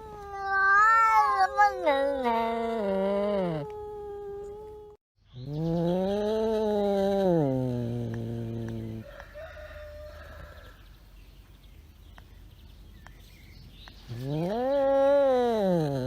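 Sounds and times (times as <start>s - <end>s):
rooster crowing: 9.0s - 10.8s.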